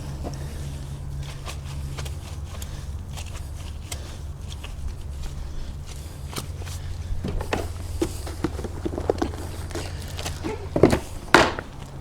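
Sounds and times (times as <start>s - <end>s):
steady low hum: 0.0s - 12.0s
light knocks and scuffs: 0.1s - 12.0s.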